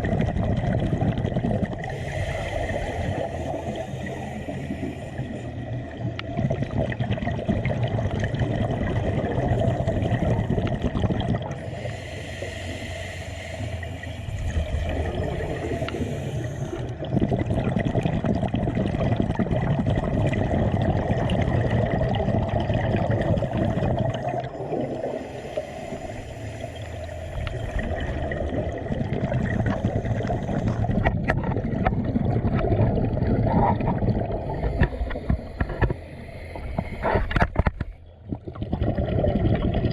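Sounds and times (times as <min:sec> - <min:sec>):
water gurgling and churning: 0:00.0 - 0:39.9
steady low rumble: 0:22.7 - 0:38.5.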